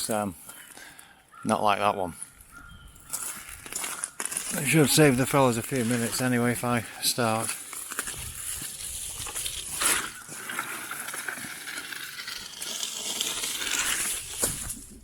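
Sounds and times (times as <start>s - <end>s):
twigs crackling and rustling: 2.3s - 12.1s
branches being dragged: 3.1s - 15.0s.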